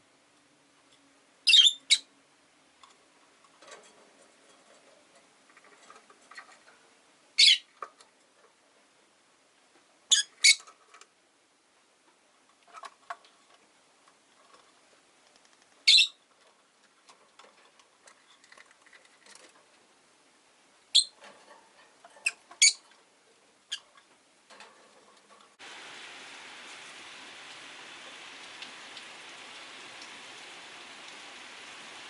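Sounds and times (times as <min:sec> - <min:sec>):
soft clicks and rustles: 0:02.8 - 0:07.0, 0:07.7 - 0:10.0, 0:10.6 - 0:20.0, 0:21.1 - 0:25.6
lovebirds chirping shrilly: 0:07.4 - 0:07.6, 0:15.9 - 0:16.2.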